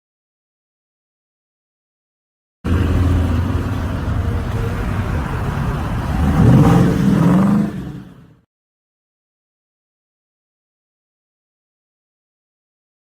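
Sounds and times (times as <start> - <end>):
car engine running and revving: 2.7 - 8.4.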